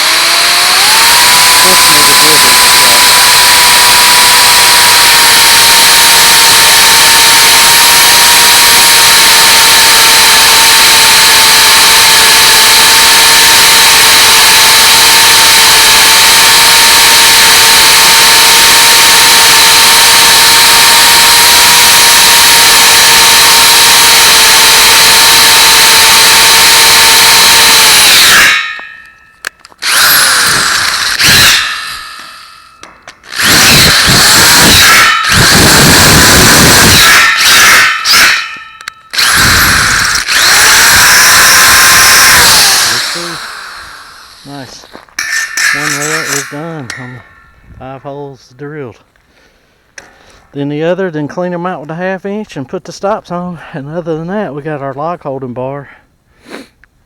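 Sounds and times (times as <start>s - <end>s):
power drill whining: 0.0s - 47.8s.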